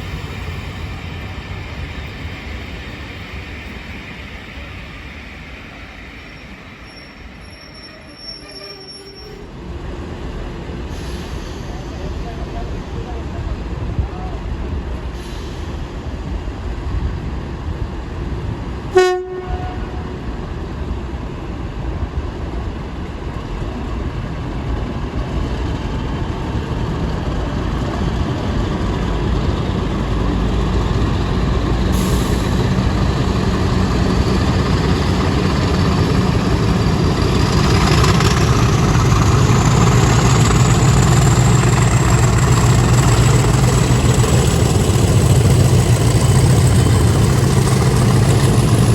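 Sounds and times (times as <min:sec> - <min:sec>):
diesel locomotive engines: 0:00.0 - 0:48.9
locomotive horn: 0:18.9 - 0:20.2.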